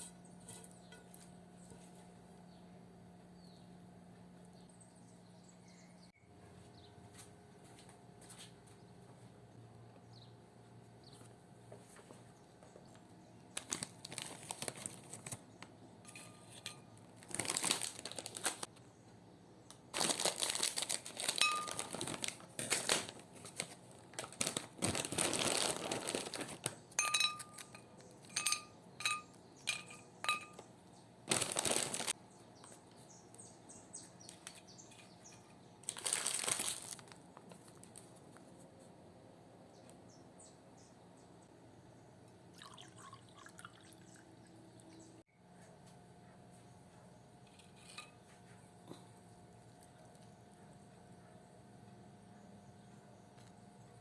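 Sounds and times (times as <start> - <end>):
rustling and crinkling: 11.1 - 18.8, 19.9 - 30.7, 31.3 - 33.1, 34.0 - 39.0.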